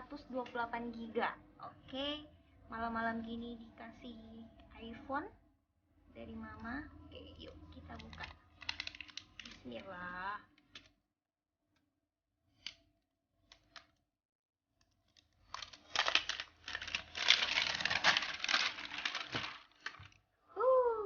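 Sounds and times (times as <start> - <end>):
plastic wrapping crinkling and tearing: 7.9 - 9.9, 15.2 - 20.2.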